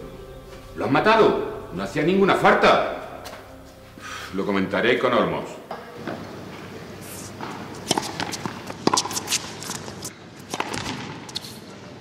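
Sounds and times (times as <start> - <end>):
footsteps on court: 7.3 - 11.6
rackets striking ball: 7.4 - 11.4.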